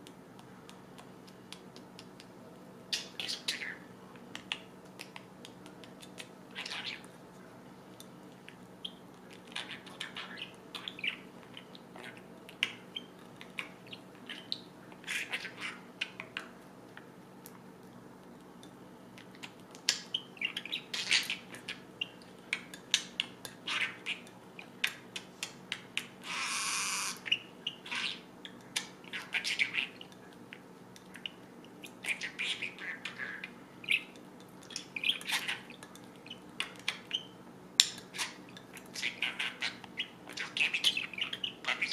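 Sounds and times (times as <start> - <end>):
budgerigar chirping and chattering: 6.1 - 7.0, 8.8 - 16.2, 19.9 - 24.8, 26.0 - 30.2, 31.2 - 37.4, 38.1 - 41.9.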